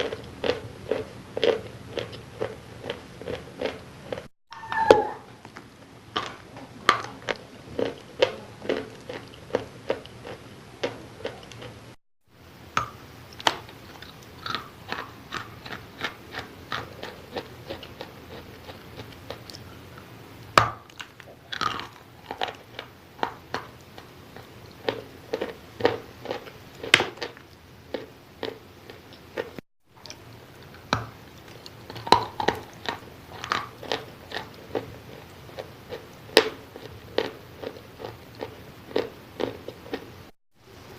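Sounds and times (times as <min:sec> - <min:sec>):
person chewing wet crunches: 0:00.0 - 0:04.3, 0:06.2 - 0:11.8, 0:13.3 - 0:20.1, 0:20.8 - 0:40.1.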